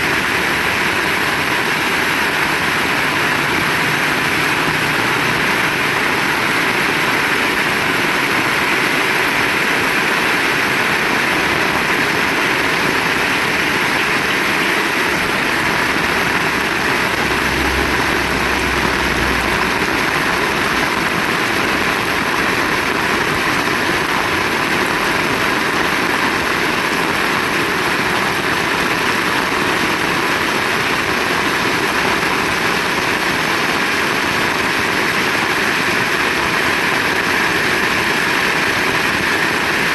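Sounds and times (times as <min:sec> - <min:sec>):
heavy rain falling: 0:00.0 - 0:39.9
low rumble: 0:14.7 - 0:22.6.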